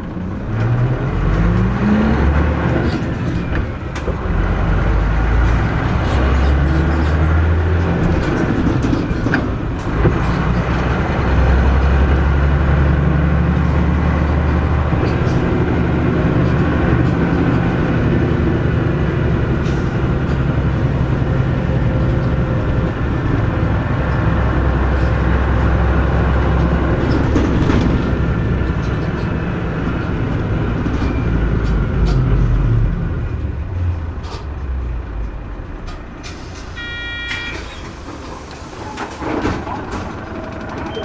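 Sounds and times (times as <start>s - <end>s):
bus diesel engine pulling: 0.0s - 41.0s
cabin rattles: 2.5s - 10.8s.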